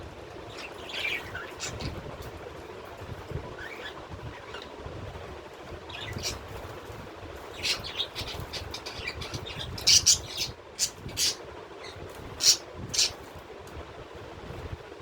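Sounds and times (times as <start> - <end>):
birds chirping: 0.2 - 2.5, 3.4 - 4.8, 5.7 - 13.3.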